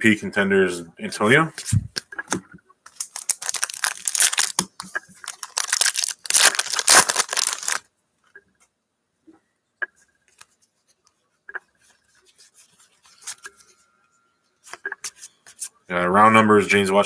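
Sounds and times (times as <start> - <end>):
foil wrapper tearing and crinkling: 2.9 - 7.8.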